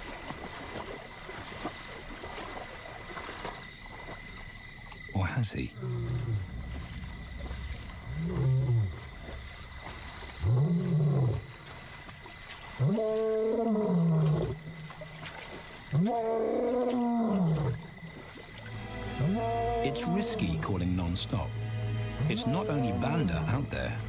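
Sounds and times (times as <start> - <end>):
lion roaring: 8.0 - 9.1, 10.4 - 11.5.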